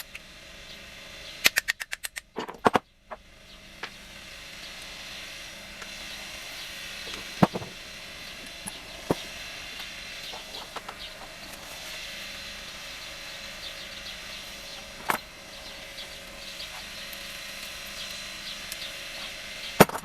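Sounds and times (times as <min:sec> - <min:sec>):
metal tools clinking on engine: 0:01.6 - 0:02.8, 0:14.7 - 0:15.3, 0:19.2 - 0:20.0
birds chirping: 0:02.3 - 0:20.0
steady hiss: 0:03.0 - 0:20.0.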